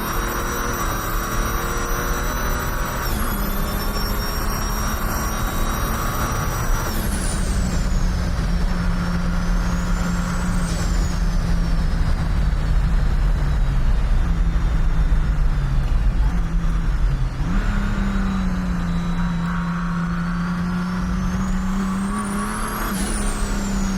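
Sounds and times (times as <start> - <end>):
turbo whistle: 0.0 - 11.8, 17.5 - 23.9
diesel engine rumbling: 0.0 - 23.9.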